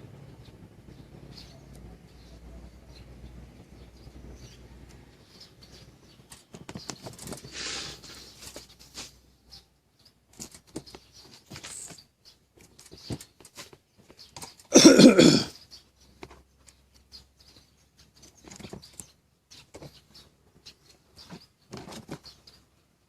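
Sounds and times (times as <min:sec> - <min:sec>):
short scraping rustle: 0:06.3 - 0:09.3, 0:10.4 - 0:14.7.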